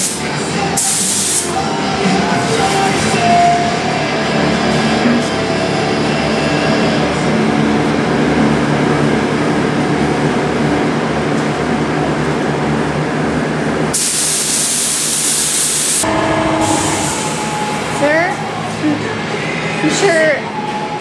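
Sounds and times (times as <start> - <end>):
air spray gun hissing: 0.8 - 1.6, 14.0 - 17.6
machine drone with low hum: 1.6 - 13.9, 16.0 - 19.8.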